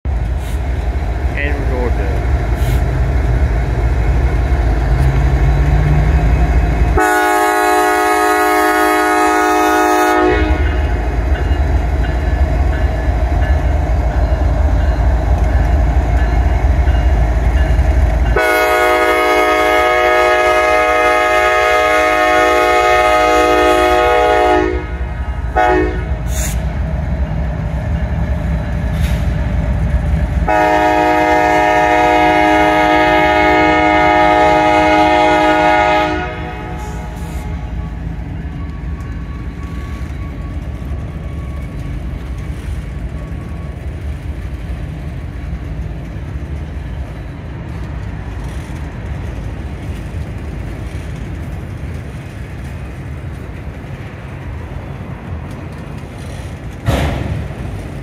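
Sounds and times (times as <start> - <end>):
diesel locomotive engine rumble: 0.0 - 58.0
wheels on rails: 0.1 - 7.0, 36.4 - 58.0
locomotive air horn blasts: 7.0 - 10.9, 18.4 - 26.5, 30.5 - 37.7.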